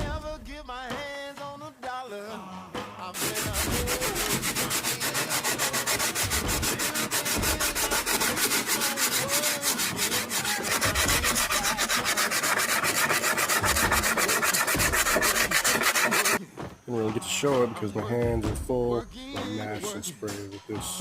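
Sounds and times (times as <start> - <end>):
rapid sanding strokes: 3.2 - 16.4.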